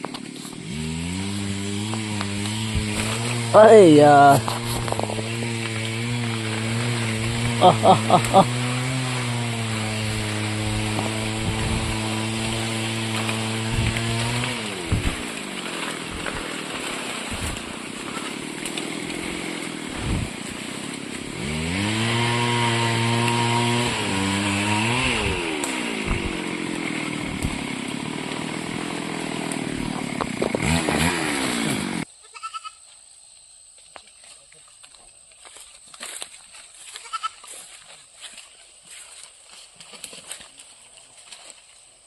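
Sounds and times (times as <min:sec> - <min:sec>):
small petrol engine revving: 0:00.0 - 0:32.1.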